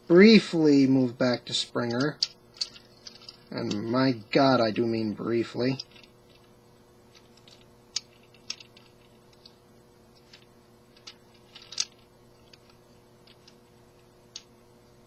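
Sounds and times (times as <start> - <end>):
faint steady hum: 0.0 - 15.0
plastic toy parts clicking: 1.9 - 3.9, 7.2 - 9.6, 10.2 - 13.6.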